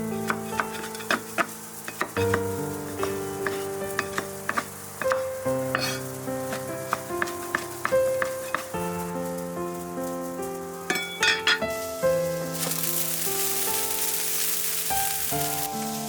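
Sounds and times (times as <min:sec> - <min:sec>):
food sizzling in a pan: 0:00.0 - 0:16.0
soft background music: 0:00.0 - 0:16.0
utensil scraping against pan: 0:00.2 - 0:08.8, 0:10.9 - 0:11.9.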